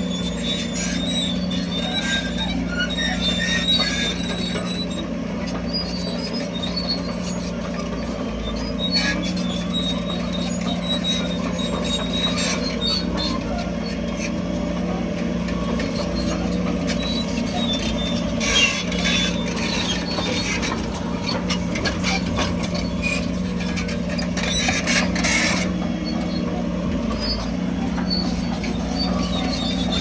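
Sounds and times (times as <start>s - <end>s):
diesel engine of heavy machinery: 0.0s - 30.0s
clattering and rattling: 8.8s - 30.0s.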